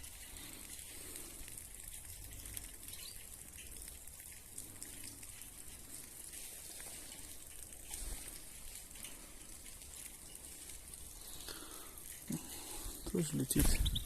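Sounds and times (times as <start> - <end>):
small birds chirping: 2.4 - 4.0, 7.1 - 14.0.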